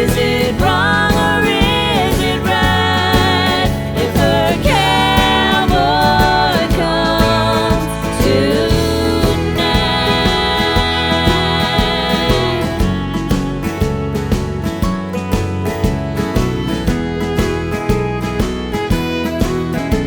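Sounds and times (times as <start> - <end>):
upbeat song with singing: 0.0 - 14.1.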